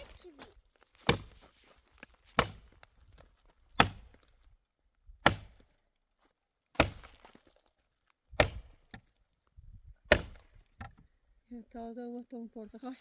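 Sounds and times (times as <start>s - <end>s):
axe chopping wood: 1.0s - 1.4s, 2.3s - 2.9s, 3.7s - 4.3s, 5.2s - 5.7s, 6.8s - 7.5s, 8.4s - 9.1s, 10.1s - 11.0s.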